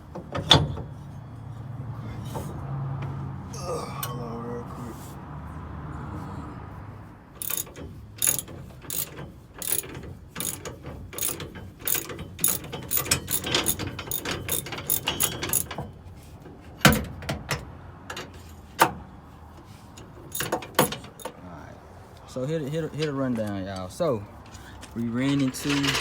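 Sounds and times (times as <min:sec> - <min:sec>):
ratchet wrench clicking: 0:07.4 - 0:15.8, 0:20.3 - 0:21.4.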